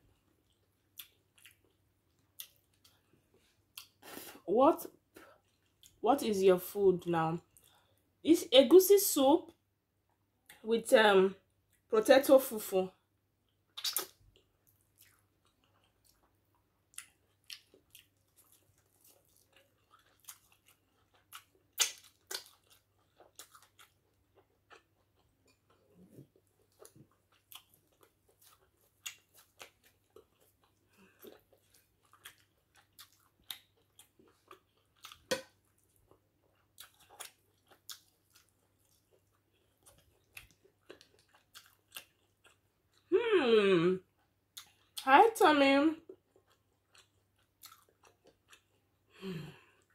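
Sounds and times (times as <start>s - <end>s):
person chewing: 0.1s - 4.4s, 5.0s - 6.0s, 13.4s - 43.1s, 44.1s - 45.0s, 46.1s - 49.9s.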